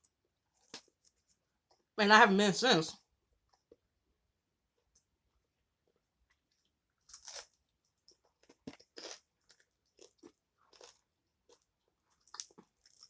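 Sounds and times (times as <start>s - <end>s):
person chewing crisp food: 0.5s - 1.9s, 5.8s - 13.0s.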